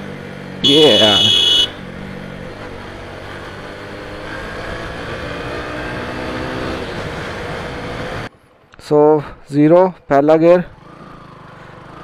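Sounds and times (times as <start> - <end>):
motorcycle engine accelerating: 0.0 - 8.3, 10.7 - 12.0.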